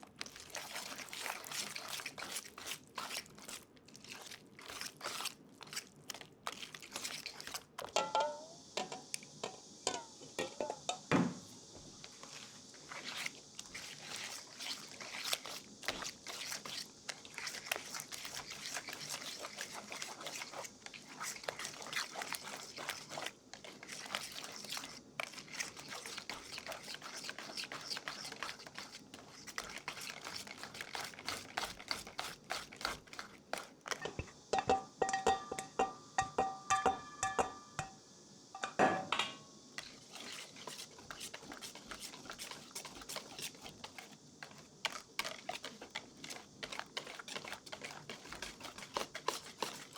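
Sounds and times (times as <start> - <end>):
crunching of dry crumbly ingredient: 0.0 - 7.9, 12.1 - 34.0, 39.8 - 49.9.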